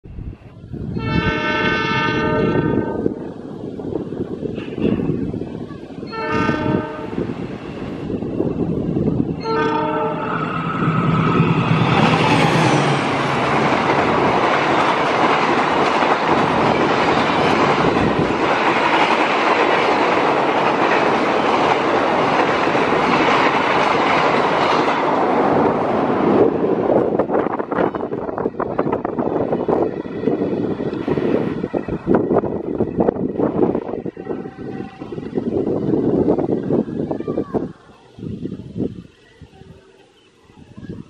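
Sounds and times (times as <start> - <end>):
train wheels on rails: 0.9 - 41.0
locomotive horn blasts: 1.0 - 3.0, 6.1 - 7.2, 9.4 - 10.4, 34.0 - 35.3
clickety-clack of train cars: 4.0 - 7.2, 11.6 - 36.4.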